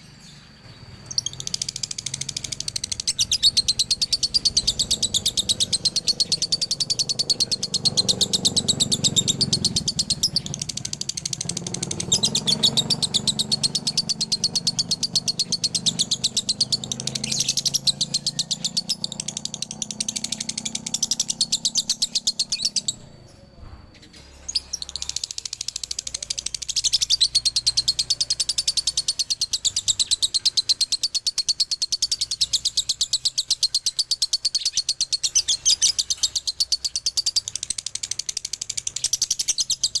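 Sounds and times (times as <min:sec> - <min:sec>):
lovebird rapid chatter: 0:00.1 - 0:23.4, 0:24.0 - 0:40.0.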